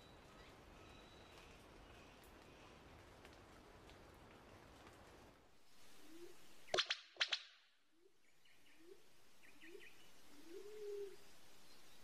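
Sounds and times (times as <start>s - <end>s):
forest birds calling: 8.0s - 12.0s.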